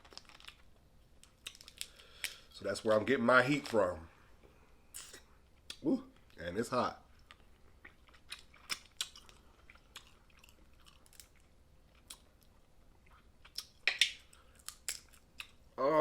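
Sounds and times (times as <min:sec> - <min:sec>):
chewing: 0:07.1 - 0:15.6
crab shell cracking: 0:13.5 - 0:15.6.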